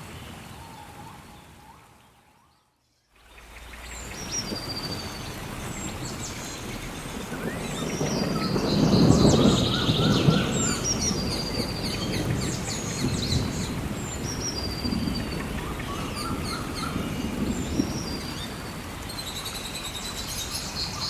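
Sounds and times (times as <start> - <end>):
steady rain: 0.0 - 2.2, 3.1 - 21.0
birds chirping and trilling: 0.2 - 21.0
thunder rumbling: 4.0 - 19.2.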